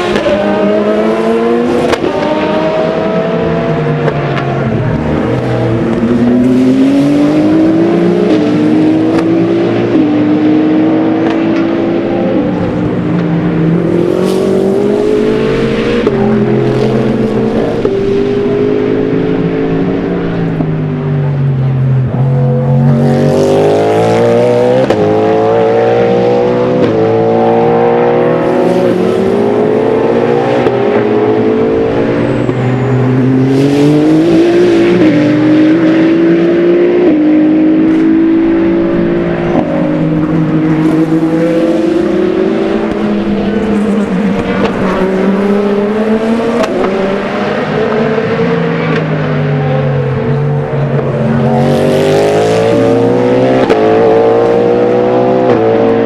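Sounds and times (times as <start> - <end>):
race car engine at full throttle: 0.0 - 56.0.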